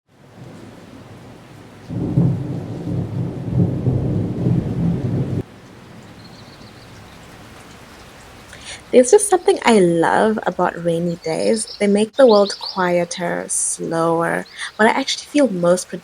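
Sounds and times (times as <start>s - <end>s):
thunder rumbling: 0.1s - 7.5s
steady rain: 0.1s - 16.0s.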